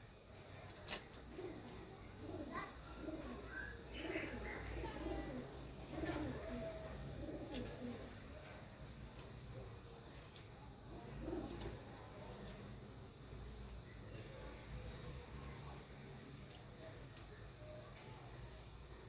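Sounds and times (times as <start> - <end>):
dove cooing: 0.6 - 8.6, 10.8 - 12.7.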